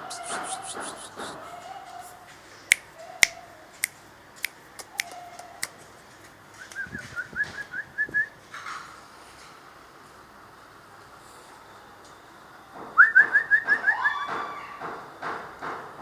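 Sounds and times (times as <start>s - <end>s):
finger snaps: 2.7s - 5.8s, 6.6s - 6.9s.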